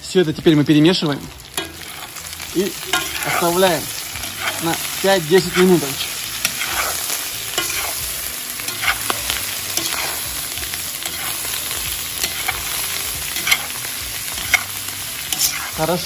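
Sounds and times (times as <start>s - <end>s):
potatoes and meat sizzling: 0.0s - 16.0s
metal spoon scraping pot: 4.2s - 4.8s, 6.4s - 8.0s, 8.7s - 10.2s, 11.0s - 15.8s.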